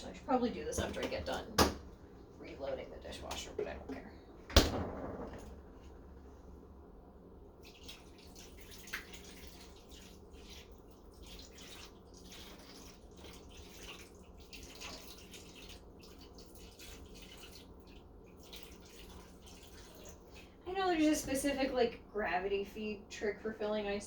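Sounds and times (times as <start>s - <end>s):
tap water splashing into trays: 7.6s - 20.6s.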